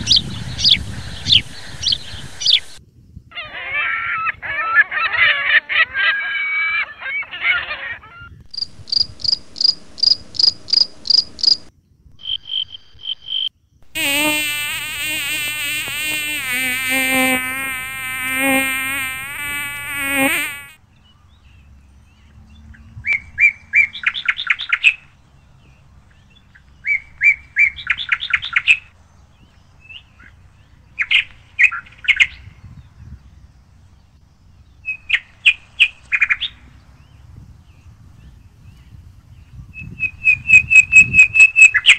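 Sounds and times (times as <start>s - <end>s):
loud wavering bird call: 3.3s - 8.3s.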